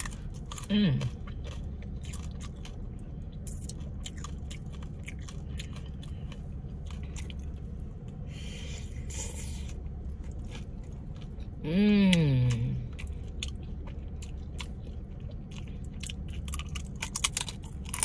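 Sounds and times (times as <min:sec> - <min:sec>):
crunching tortilla chips: 0:00.0 - 0:07.9, 0:12.6 - 0:18.0
steady low hum: 0:00.0 - 0:18.0.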